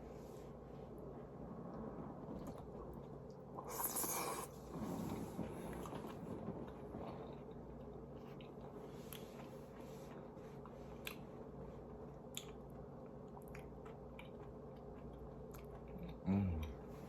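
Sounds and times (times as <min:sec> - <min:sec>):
person eating: 0:02.4 - 0:11.3
hissy scrape or bite: 0:03.6 - 0:05.5.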